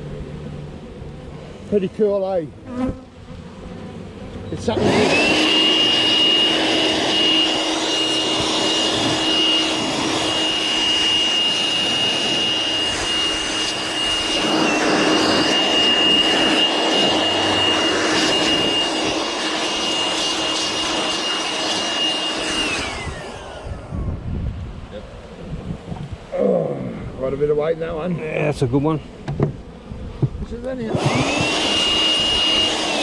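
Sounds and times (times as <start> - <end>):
electric motor whining: 3.6 - 24.3, 30.7 - 33.0
rush of air: 4.9 - 26.3.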